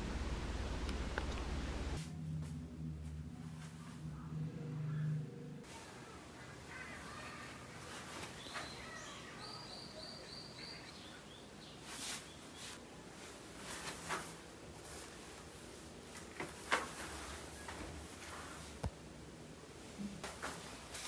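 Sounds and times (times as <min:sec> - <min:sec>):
bird chirping: 0:08.2 - 0:12.8.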